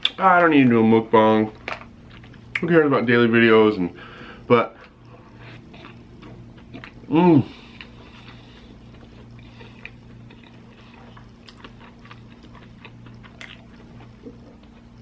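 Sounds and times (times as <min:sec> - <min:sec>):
steady low hum: 0:00.0 - 0:15.0
person chewing food: 0:01.5 - 0:02.6, 0:04.2 - 0:15.0.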